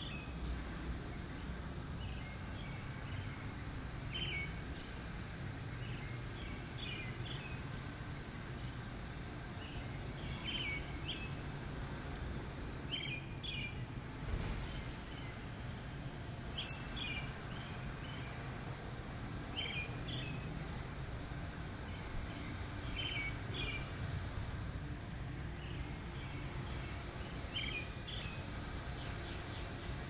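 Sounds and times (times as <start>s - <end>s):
small birds chirping: 19.5s - 30.0s.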